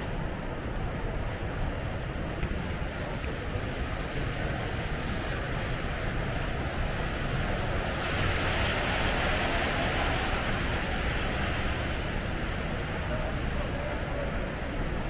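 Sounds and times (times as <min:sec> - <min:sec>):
traffic noise: 0:00.0 - 0:15.0.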